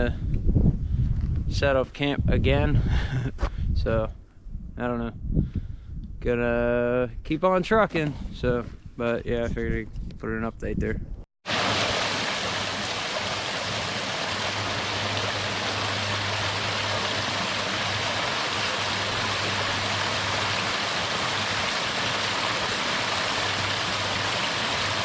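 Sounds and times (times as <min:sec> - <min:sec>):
running water rushing: 0:11.4 - 0:25.0.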